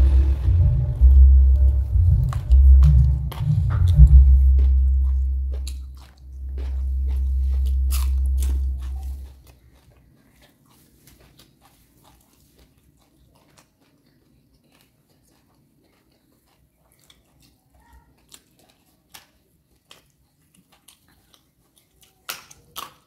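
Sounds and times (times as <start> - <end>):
deep low rumble: 0.0 - 9.5
crunching and chewing raw vegetables: 0.0 - 23.0.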